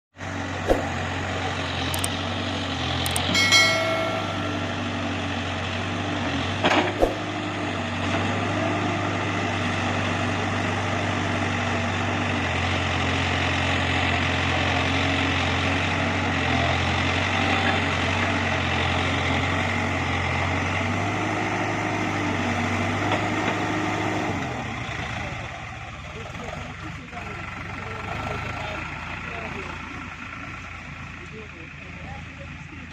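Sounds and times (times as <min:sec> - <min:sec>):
heavy diesel engine running: 0:00.2 - 0:32.9
brief high tone: 0:03.2 - 0:05.4.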